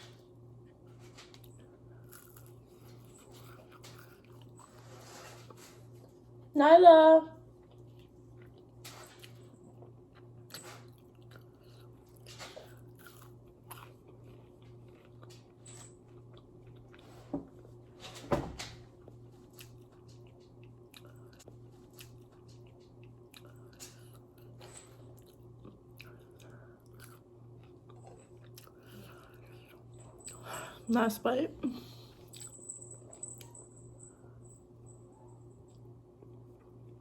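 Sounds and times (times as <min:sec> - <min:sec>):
low electrical hum: 0:00.0 - 0:37.0
person chewing food: 0:01.3 - 0:04.7, 0:07.6 - 0:17.1, 0:19.5 - 0:30.0.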